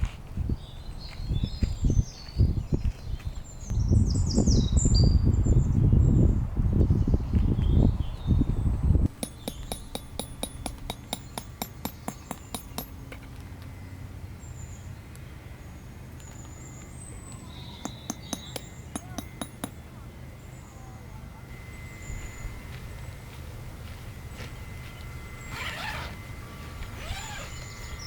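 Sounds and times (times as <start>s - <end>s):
wind rumbling on microphone: 0.0s - 10.9s
birds chirping: 9.2s - 13.1s, 13.8s - 20.9s, 21.5s - 28.0s.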